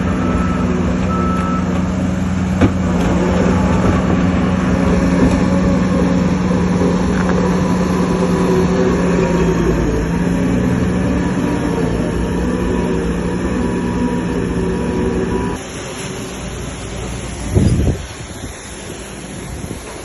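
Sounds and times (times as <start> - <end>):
reversing alarm beeping: 0.0 - 1.8
diesel earthmoving machinery running: 0.0 - 20.0.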